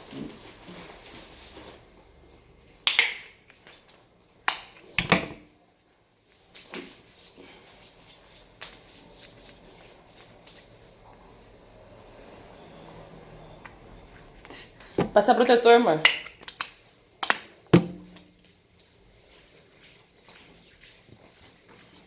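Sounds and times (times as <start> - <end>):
objects knocking and clicking: 16.0 - 18.5.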